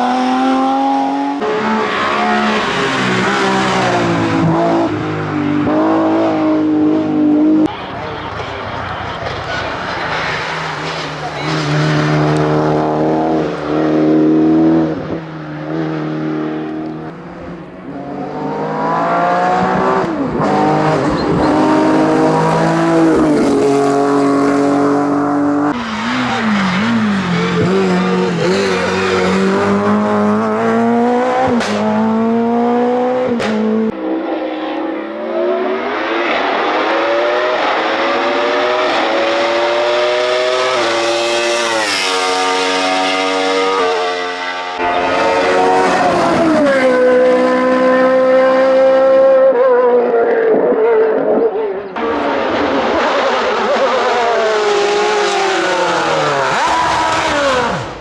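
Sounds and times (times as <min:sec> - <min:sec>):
race car engine accelerating: 0:00.0 - 0:58.0
sharp engine pops: 0:31.5 - 0:31.9, 0:33.3 - 0:33.7.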